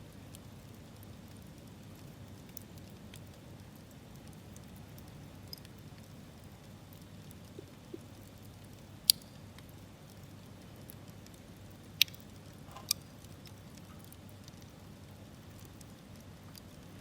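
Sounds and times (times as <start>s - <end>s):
low hiss of burning: 0.0s - 17.0s
campfire wood crackling: 0.1s - 17.0s
sharp pops of burning wood: 7.5s - 9.8s, 11.1s - 13.8s.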